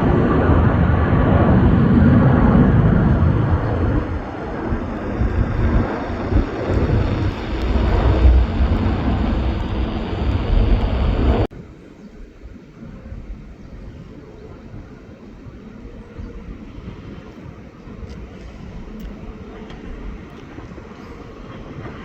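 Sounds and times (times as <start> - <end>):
jet engines rumbling: 0.0 - 11.5
wind buffeting microphone: 0.0 - 22.0.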